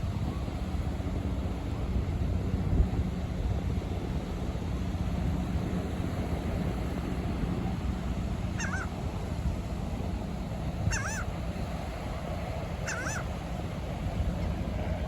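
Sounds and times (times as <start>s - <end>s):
wind: 0.0s - 15.0s
gull squawking: 8.6s - 8.9s, 10.9s - 11.3s, 12.8s - 13.3s.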